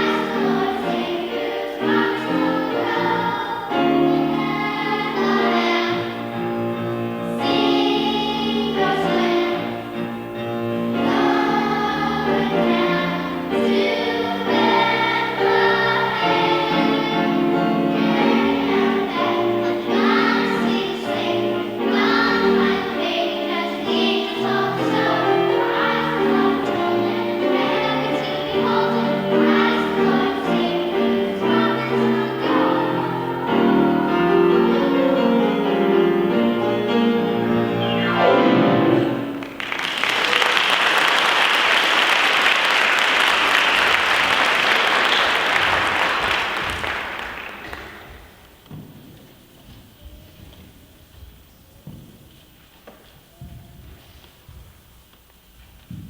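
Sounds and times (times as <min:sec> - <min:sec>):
instrumental accompaniment: 0:00.0 - 0:40.1
choir singing: 0:00.0 - 0:48.1.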